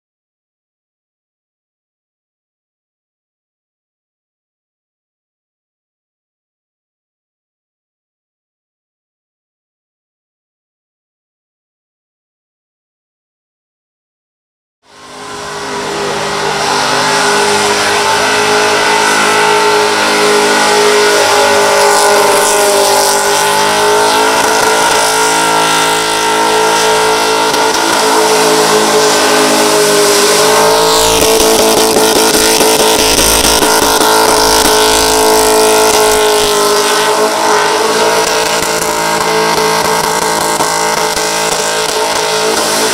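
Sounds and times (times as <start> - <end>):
car engine at high revs: 14.9 - 42.9
spinning tyres hissing: 14.9 - 42.9.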